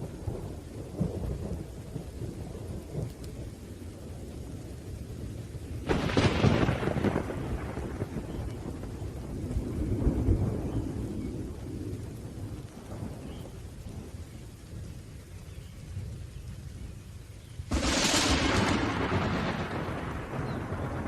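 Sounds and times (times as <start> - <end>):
steady rain: 0.0 - 21.0
thunder rumbling: 0.0 - 21.0
loud thunder crash: 17.7 - 21.0.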